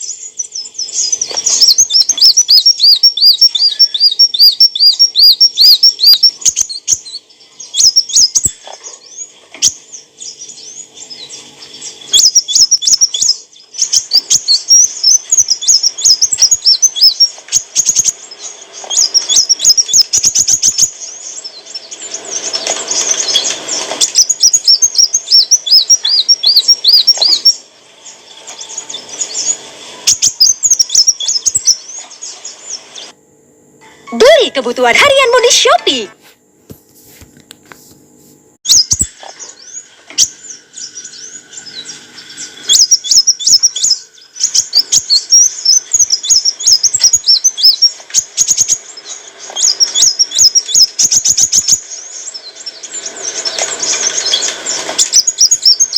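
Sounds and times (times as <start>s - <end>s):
bird chirping and trilling: 0.0s - 33.1s, 33.9s - 36.2s, 38.6s - 55.9s
noisy rustle: 13.2s - 33.2s, 35.9s - 55.9s.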